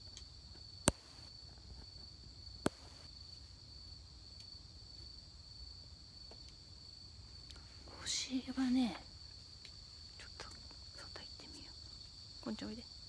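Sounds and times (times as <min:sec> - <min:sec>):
crickets trilling: 0:00.0 - 0:13.0
sharp click: 0:00.9 - 0:01.3, 0:02.7 - 0:03.1.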